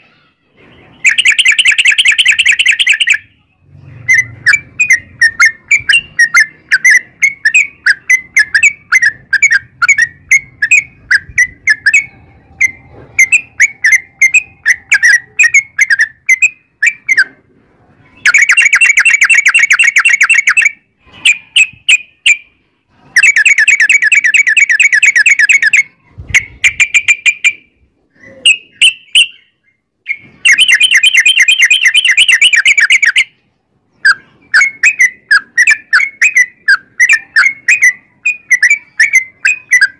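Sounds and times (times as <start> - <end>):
bird chirping and trilling: 0.0 - 39.9.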